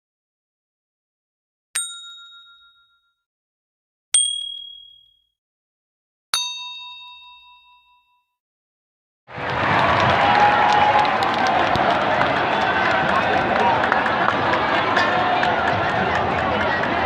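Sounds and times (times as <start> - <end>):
struck metallic dings: 1.8 - 3.0, 4.2 - 5.3, 6.4 - 8.2.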